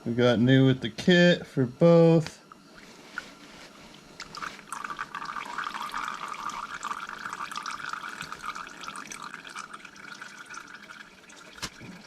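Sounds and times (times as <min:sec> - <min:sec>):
small splashes and drips: 0:04.0 - 0:12.0
oil pouring into plastic bucket: 0:04.2 - 0:12.0.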